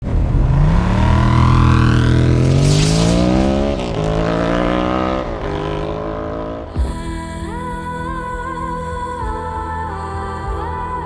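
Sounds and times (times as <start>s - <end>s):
motorcycle engine accelerating: 0.0s - 6.9s.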